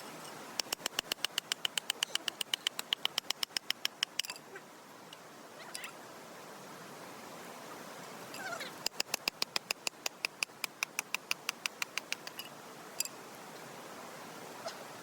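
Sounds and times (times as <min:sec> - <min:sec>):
mountain stream rushing: 0:00.0 - 0:15.0
small animal rapid chirping: 0:00.7 - 0:04.1.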